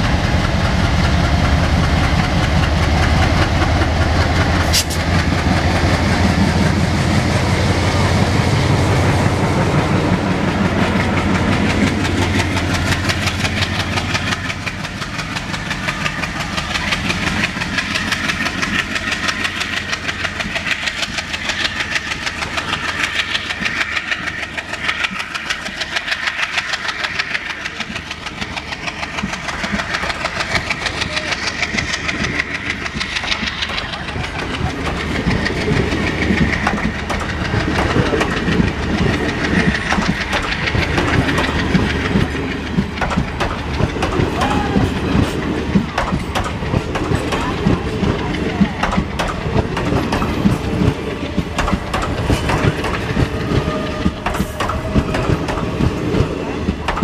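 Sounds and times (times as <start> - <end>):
diesel locomotive engine: 0.0 - 57.0
wheels clacking over rail joints: 0.0 - 57.0.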